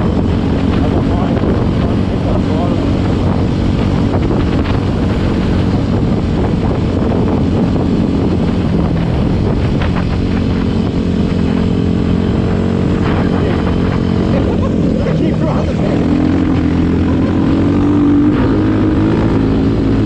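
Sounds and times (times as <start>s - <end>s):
motorcycle engine running: 0.0s - 20.0s
wind noise on microphone: 0.0s - 20.0s.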